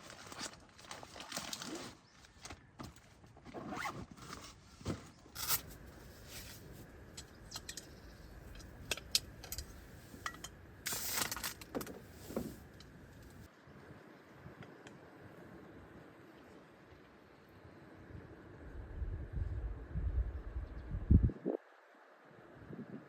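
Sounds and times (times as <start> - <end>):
handling clicks and rustles: 0.0 - 13.5
zipper being pulled: 3.5 - 4.6.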